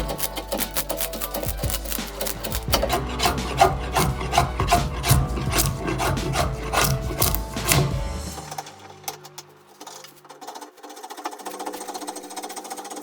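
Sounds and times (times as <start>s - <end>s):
hand rasp on wood: 0.0s - 8.2s.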